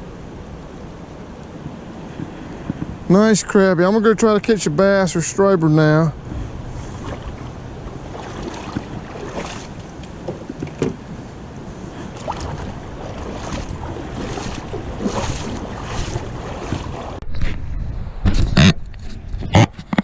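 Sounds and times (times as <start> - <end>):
rushing river water: 0.0 - 17.2
wind buffeting microphone: 0.0 - 20.0
small water splashes: 6.7 - 10.4, 11.9 - 17.2.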